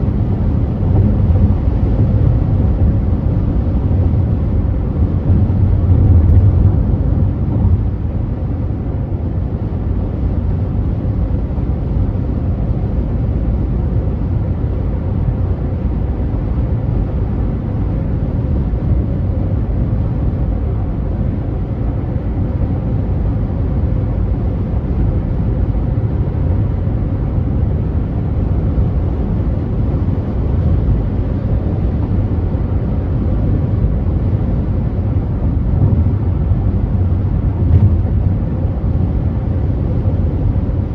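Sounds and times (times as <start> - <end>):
tyre and road noise: 0.0 - 7.9, 33.2 - 40.9
car engine: 0.0 - 8.6, 14.7 - 40.9.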